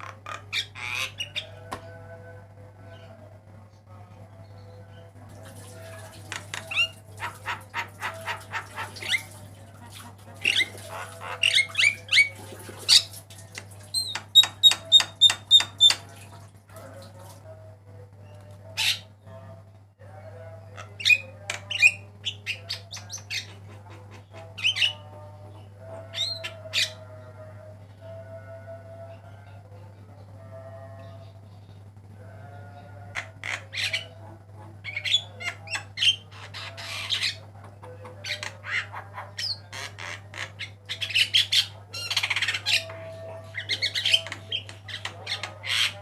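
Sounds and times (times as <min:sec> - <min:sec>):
steady low hum: 0:23.5 - 0:36.5.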